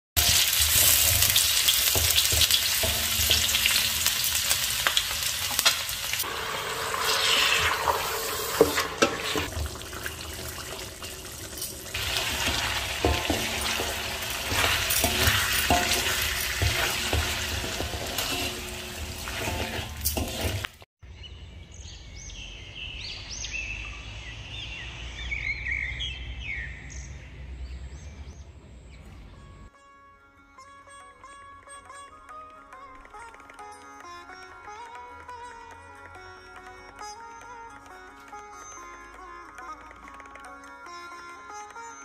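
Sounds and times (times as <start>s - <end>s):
food sizzling in a wok: 0.2s - 20.9s
wooden spatula scraping wok: 0.2s - 20.9s.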